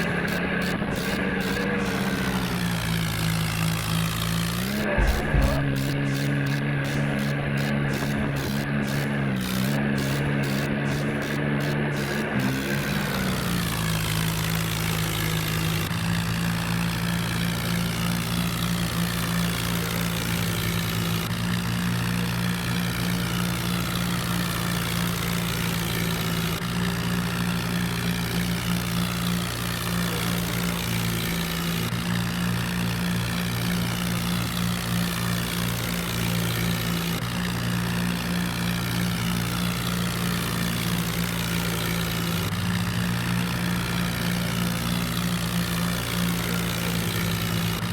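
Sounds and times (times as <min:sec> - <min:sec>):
tractor engine droning: 0:00.0 - 0:47.9.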